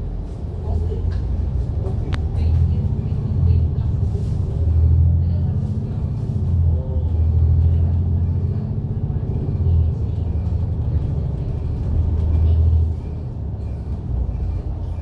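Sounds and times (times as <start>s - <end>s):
bus diesel engine drone: 0.0s - 15.0s.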